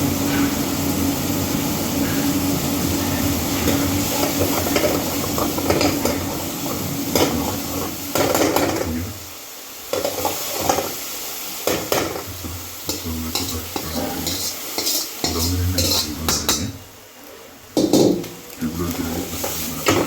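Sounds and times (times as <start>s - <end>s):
food sizzling: 0.0s - 20.0s
spoon scraping cooking pot: 12.9s - 16.7s.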